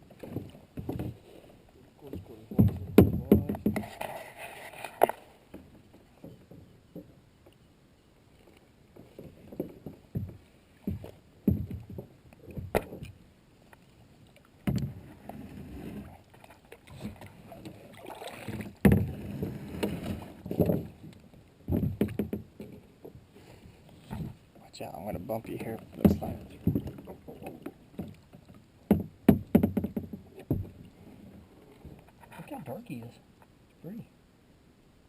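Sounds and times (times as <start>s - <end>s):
paddle water sloshing: 0.0s - 33.8s
knocks against boat: 2.1s - 4.0s, 9.0s - 13.1s, 14.6s - 15.0s, 18.4s - 21.0s, 21.6s - 22.8s, 25.5s - 28.2s, 28.9s - 30.8s.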